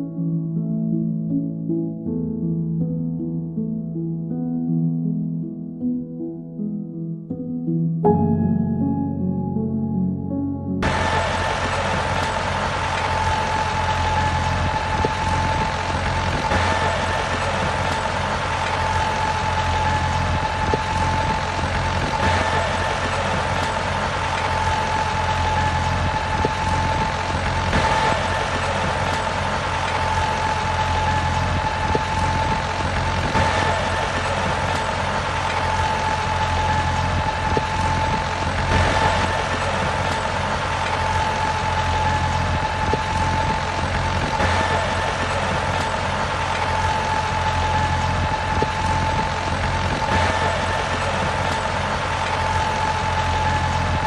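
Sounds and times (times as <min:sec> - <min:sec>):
model truck motor whining: 0:10.8 - 0:54.0.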